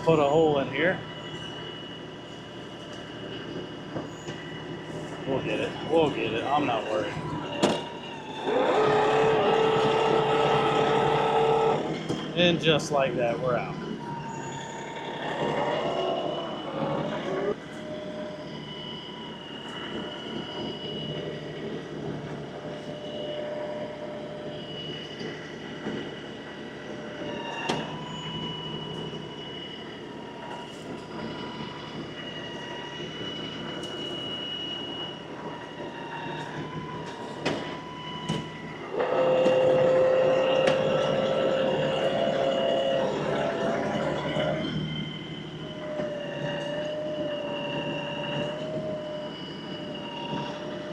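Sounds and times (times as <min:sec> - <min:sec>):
tractor diesel engine running: 0:00.0 - 0:18.1
whine: 0:00.0 - 0:50.9.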